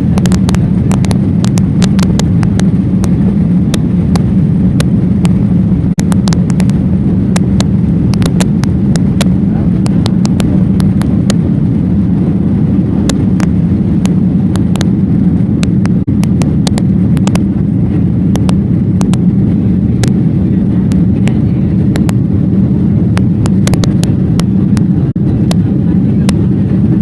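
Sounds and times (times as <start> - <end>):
vehicle rumble from inside: 0.0 - 27.0
sharp clicks: 0.2 - 5.4, 6.0 - 6.8, 7.4 - 11.4, 15.6 - 17.5, 18.3 - 19.2, 21.9 - 22.2, 23.1 - 24.9.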